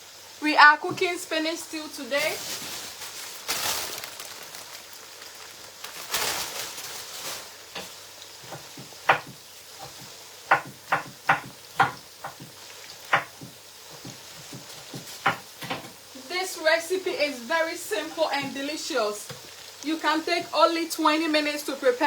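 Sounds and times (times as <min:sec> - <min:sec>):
food sizzling in oil: 0:00.0 - 0:22.0
spoon knocking against pot: 0:08.5 - 0:16.0.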